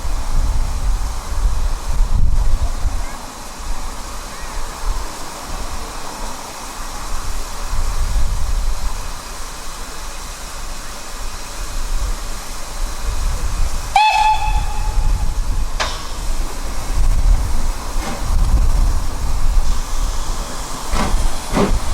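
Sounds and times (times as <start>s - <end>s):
steam locomotive hissing: 0.0s - 21.9s
steam whistle blast: 13.9s - 15.6s.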